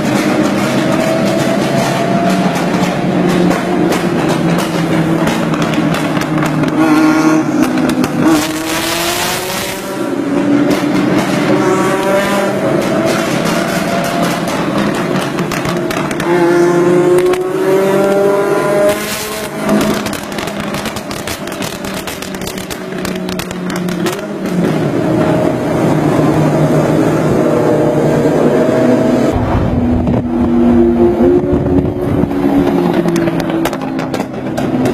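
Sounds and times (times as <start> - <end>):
car engine revving hard: 0.0 - 22.3.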